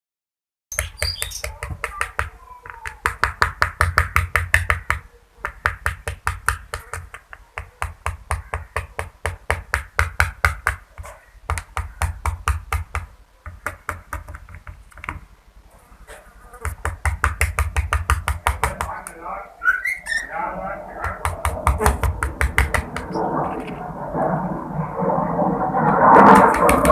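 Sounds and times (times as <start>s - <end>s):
bird beak tapping hard surface: 0.7s - 15.2s, 16.6s - 19.2s, 21.0s - 23.2s, 26.3s - 26.9s.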